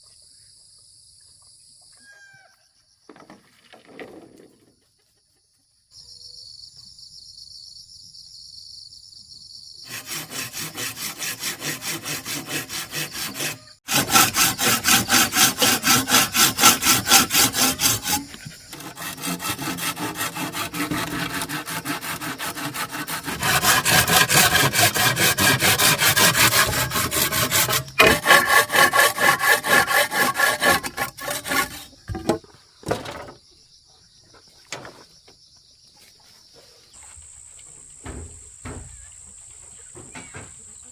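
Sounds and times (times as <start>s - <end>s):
hand saw cutting wood: 9.9s - 32.4s.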